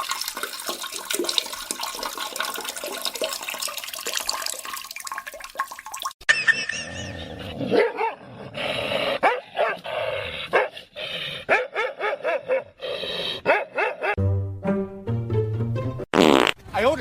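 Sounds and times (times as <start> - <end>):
dog barking: 7.7 - 8.2, 9.2 - 9.9, 10.5 - 10.8, 11.5 - 12.8, 13.4 - 14.2.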